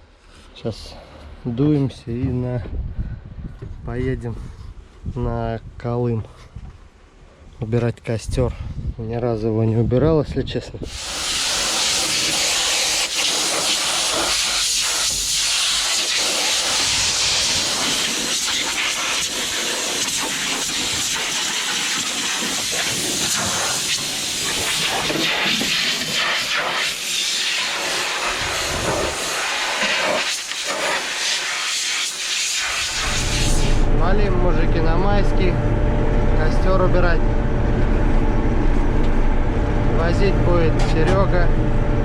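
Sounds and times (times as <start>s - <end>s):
compressed air hissing from hose: 10.9s - 33.8s.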